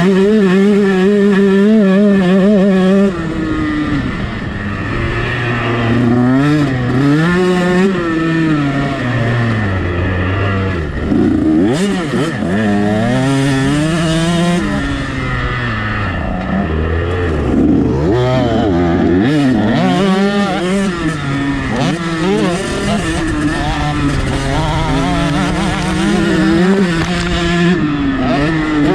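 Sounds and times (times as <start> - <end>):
motocross engine revving: 0.0 - 28.9.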